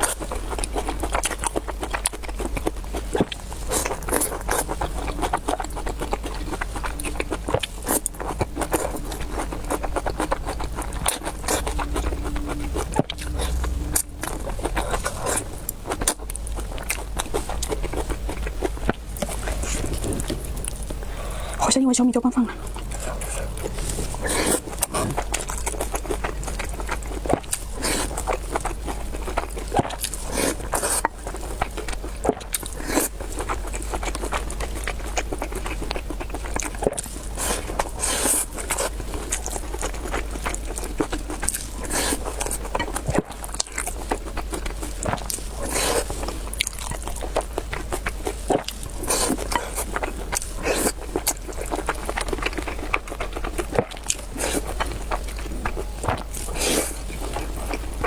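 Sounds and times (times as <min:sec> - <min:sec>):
chewing and slurping mouth sounds: 0:00.0 - 0:21.6, 0:22.3 - 0:58.0
low hum: 0:06.0 - 0:26.8.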